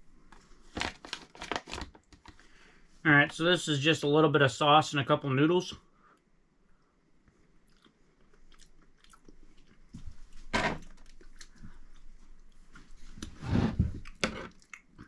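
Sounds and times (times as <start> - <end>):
man chewing food: 6.6 - 15.0.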